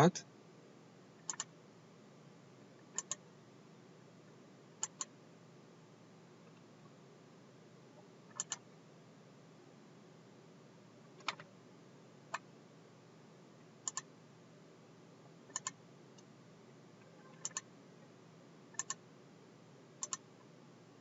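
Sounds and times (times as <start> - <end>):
computer mouse clicking: 1.2 - 1.5, 3.0 - 3.2, 4.8 - 5.1, 8.3 - 8.6, 11.2 - 11.5, 13.8 - 14.1, 15.5 - 16.3, 17.4 - 17.7, 18.8 - 19.0, 20.0 - 20.3.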